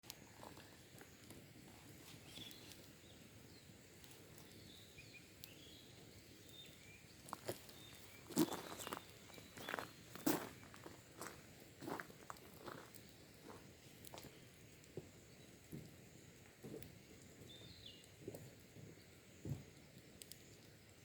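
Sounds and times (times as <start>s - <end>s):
birds chirping faintly: 0.0s - 21.0s
sharp crackles and knocks: 6.4s - 20.8s.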